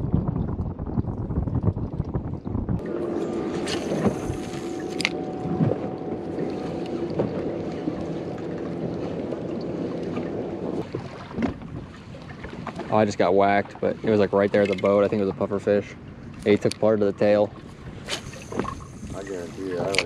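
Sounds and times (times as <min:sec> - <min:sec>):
wind buffeting microphone: 0:00.0 - 0:16.4
steady low hum: 0:02.6 - 0:12.3.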